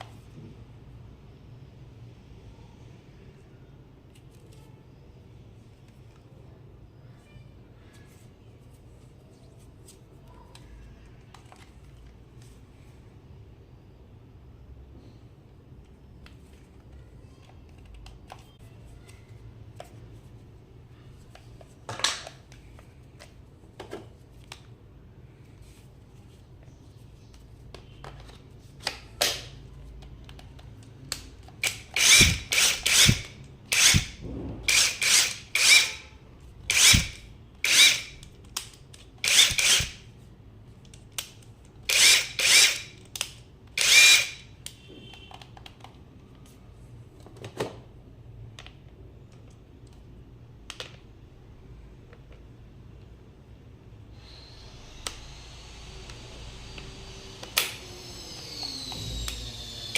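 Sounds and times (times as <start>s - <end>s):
impact wrench bursts: 31.6s - 36.1s, 36.7s - 38.2s, 39.2s - 40.1s, 41.9s - 43.0s, 43.8s - 44.5s, 54.2s - 59.9s.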